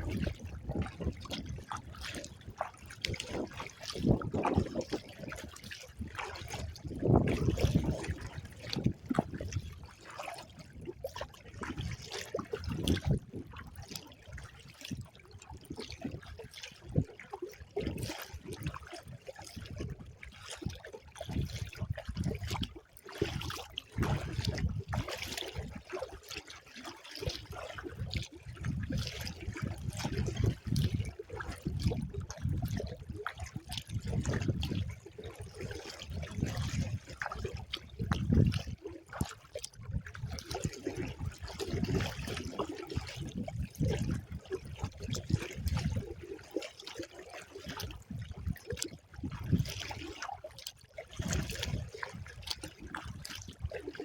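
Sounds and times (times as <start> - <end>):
wind rumbling on microphone: 0.0 - 11.0, 12.6 - 13.9, 21.3 - 22.7, 23.4 - 25.8, 27.9 - 46.2
water splashing against kayak: 0.0 - 54.0.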